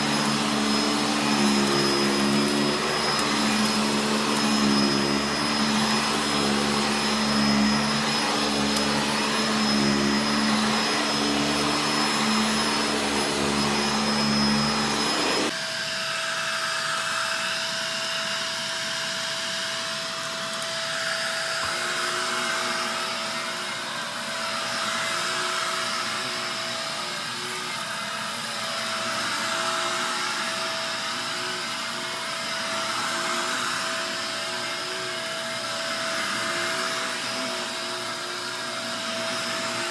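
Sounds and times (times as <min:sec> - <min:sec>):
vacuum swishing back and forth: 0:00.0 - 0:15.6
vacuum cleaner deep humming motor: 0:00.0 - 0:39.9
vacuum cleaner high whine: 0:00.0 - 0:39.9.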